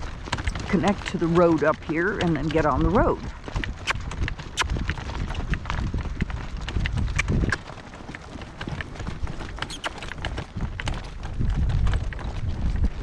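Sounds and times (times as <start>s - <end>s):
hoofbeats on soft ground: 0.0s - 13.0s
cart clicking and rattling: 4.9s - 13.0s.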